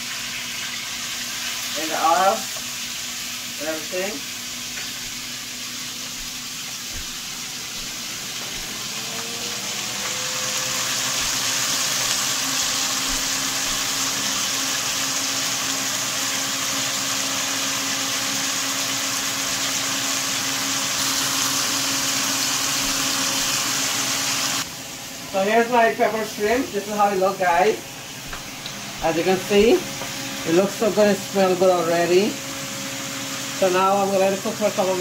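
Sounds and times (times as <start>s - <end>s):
shrimp sizzling in hot oil: 0.0s - 24.7s
steady hum: 2.0s - 14.7s.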